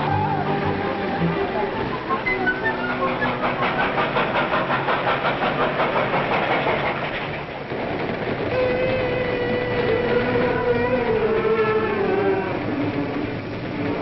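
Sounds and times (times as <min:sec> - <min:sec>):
train whistle: 0:00.0 - 0:04.5, 0:08.5 - 0:13.2
train wheels clattering: 0:00.0 - 0:14.0.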